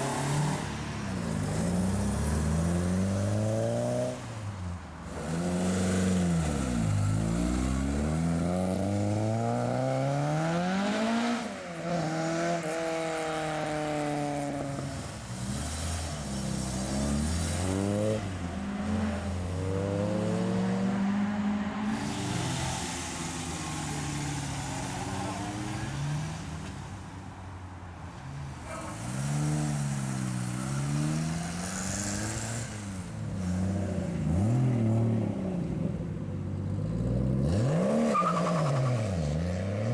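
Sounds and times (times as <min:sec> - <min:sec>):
cars accelerating hard: 0:37.0 - 0:39.9.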